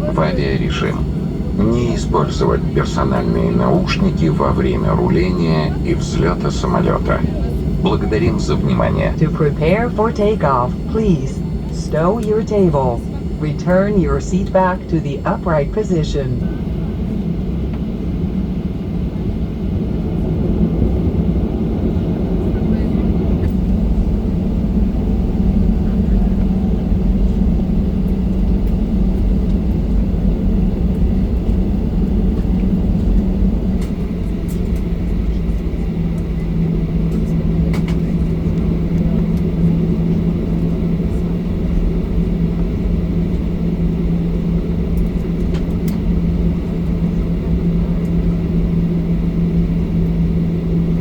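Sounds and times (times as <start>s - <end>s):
steady hum: 0.0s - 21.2s
jet engines rumbling: 0.0s - 51.0s.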